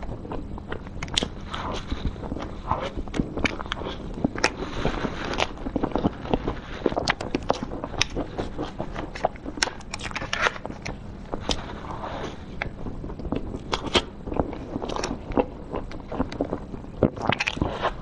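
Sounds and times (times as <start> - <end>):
mouth clicks and smacks: 0.0 - 1.4, 5.3 - 11.6, 12.6 - 18.0
person chewing soft cake: 0.0 - 18.0.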